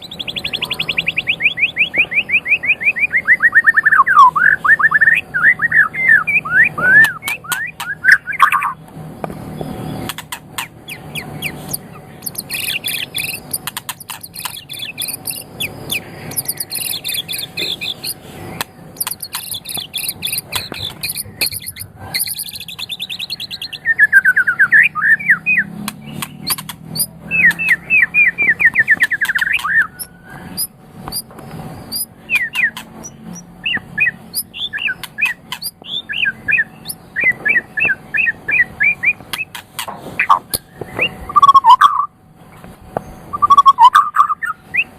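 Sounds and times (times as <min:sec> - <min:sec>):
songbird singing: 0:00.0 - 0:44.9.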